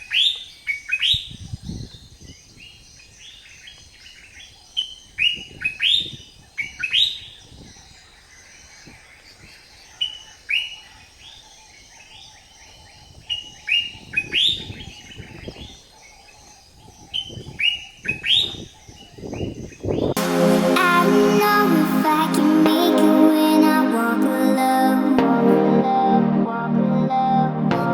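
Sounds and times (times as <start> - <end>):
bird chirping: 0.0 - 20.2
music: 20.2 - 27.9.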